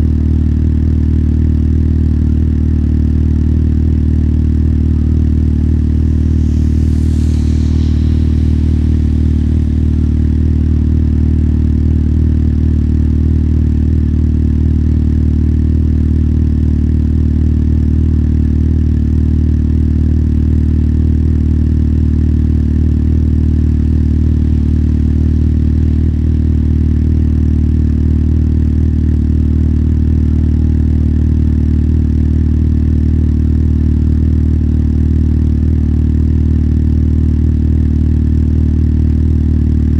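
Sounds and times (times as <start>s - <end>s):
faint high squeal: 4.7s - 12.7s, 23.0s - 28.3s.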